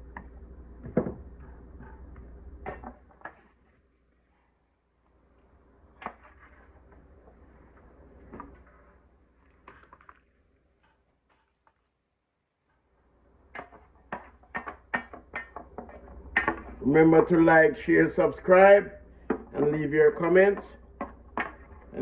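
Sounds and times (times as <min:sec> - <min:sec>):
utensils tapping cookware: 0:13.5 - 0:16.8.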